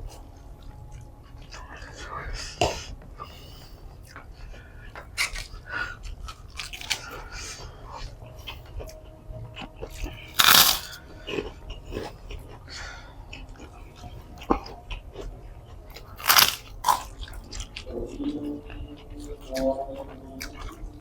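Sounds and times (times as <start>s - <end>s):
person chewing and biting: 6.3s - 7.0s, 10.4s - 11.0s, 16.0s - 17.1s.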